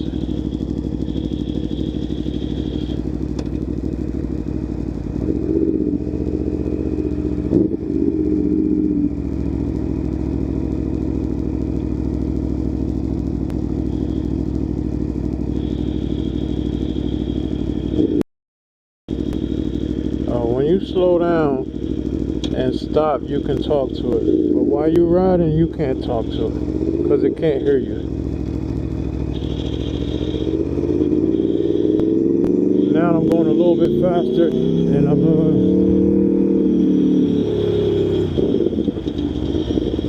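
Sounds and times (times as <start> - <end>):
motorcycle engine running: 0.0 - 18.2, 19.1 - 40.0.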